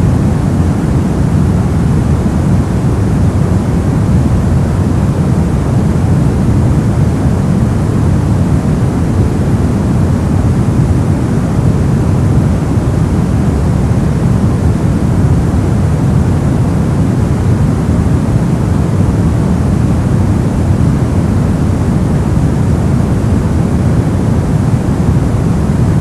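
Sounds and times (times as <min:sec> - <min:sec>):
brown noise: 0:00.0 - 0:26.0.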